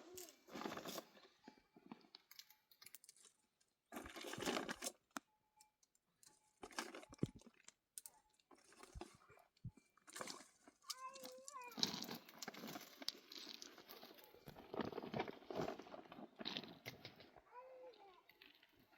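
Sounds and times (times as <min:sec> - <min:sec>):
rustling and crunching dry material: 0:00.0 - 0:05.1, 0:06.3 - 0:18.9.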